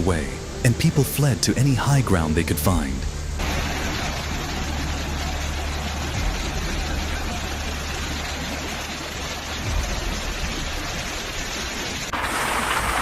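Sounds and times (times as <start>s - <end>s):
rushing floodwater: 0.0s - 13.0s.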